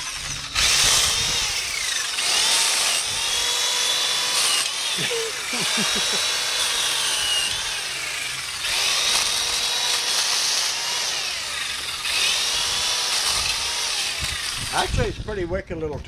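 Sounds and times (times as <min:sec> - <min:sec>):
electric chainsaw cutting limbs: 0:00.0 - 0:15.5.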